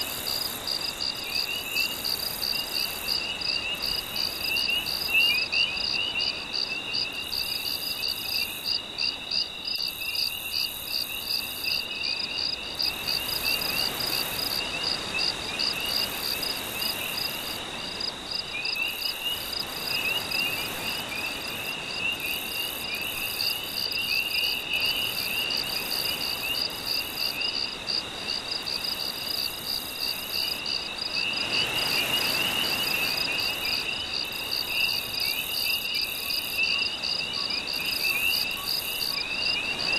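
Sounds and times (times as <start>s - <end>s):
crickets trilling: 0.0s - 39.9s
insects chirping: 0.0s - 39.9s
gentle sea waves: 24.6s - 35.2s.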